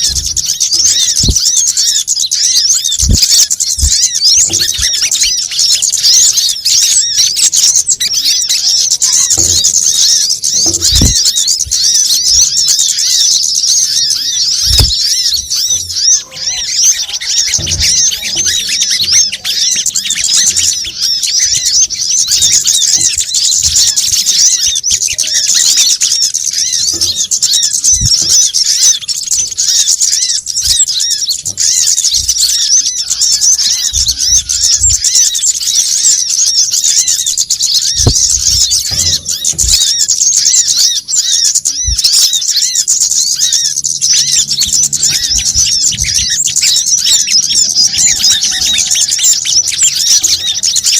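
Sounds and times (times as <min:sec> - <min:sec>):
birds chirping and twittering: 0:00.0 - 0:50.9
low thumps: 0:02.8 - 0:05.1, 0:09.3 - 0:12.5, 0:14.5 - 0:15.6, 0:37.7 - 0:40.2.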